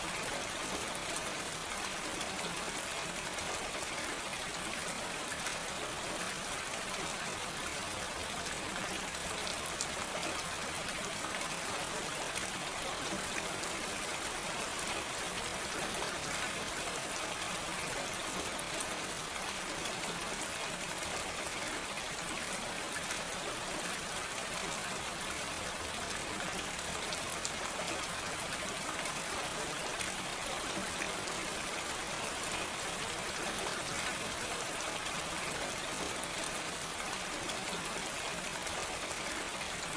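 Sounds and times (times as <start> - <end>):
gentle rain hiss: 0.0 - 39.9.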